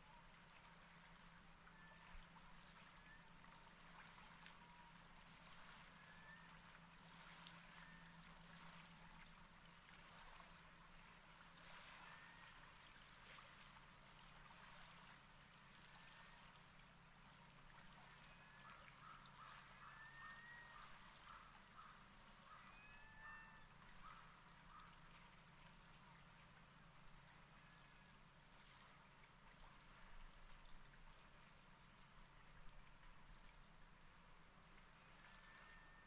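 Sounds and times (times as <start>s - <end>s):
low steady hum: 0.0s - 36.0s
distant bird calls: 18.3s - 25.1s.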